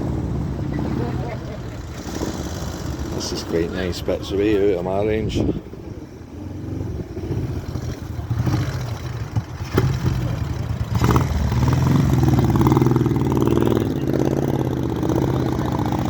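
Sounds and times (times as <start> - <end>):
motorbike engine running: 7.8 - 16.0.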